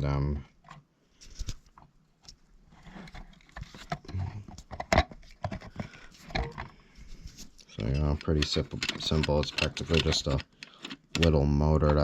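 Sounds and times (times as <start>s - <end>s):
plastic parts clicking and knocking: 3.1s - 6.8s, 7.8s - 12.0s.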